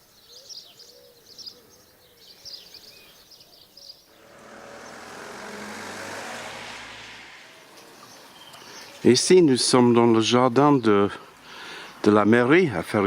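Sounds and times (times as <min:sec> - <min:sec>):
small birds chirping: 0:00.0 - 0:05.6, 0:07.5 - 0:12.4
car on wet road: 0:04.1 - 0:08.9.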